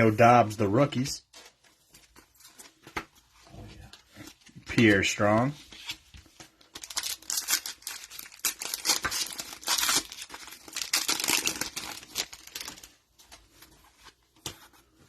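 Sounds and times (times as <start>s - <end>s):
plastic wrapper crinkling and tearing: 6.6s - 13.0s.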